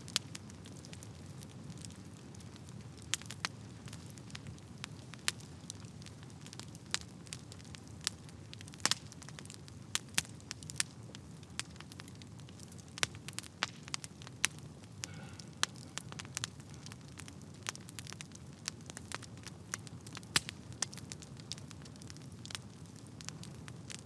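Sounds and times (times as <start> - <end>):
fire crackling in a fireplace: 0.0 - 24.0.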